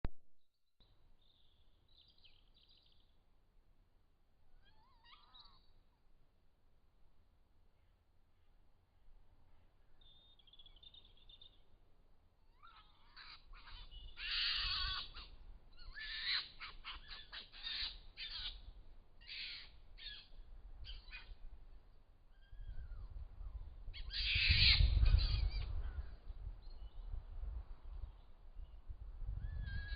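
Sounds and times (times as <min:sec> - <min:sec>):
harsh screeching animal calls: 0:12.6 - 0:18.6, 0:19.2 - 0:20.2, 0:24.0 - 0:25.4.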